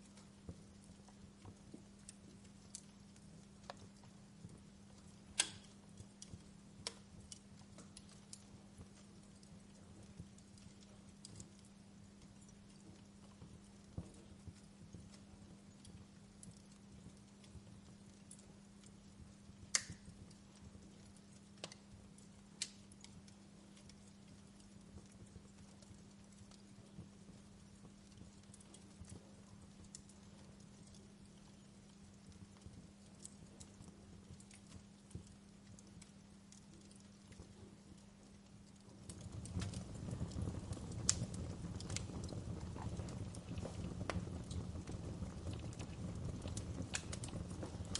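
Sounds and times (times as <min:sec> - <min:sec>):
faint steady hiss: 0:00.0 - 0:47.9
faint steady hum: 0:00.0 - 0:47.9
wood fire crackling: 0:00.0 - 0:47.9
sharp pops of fire: 0:03.6 - 0:09.1, 0:19.5 - 0:21.9, 0:22.5 - 0:23.3, 0:39.0 - 0:47.9.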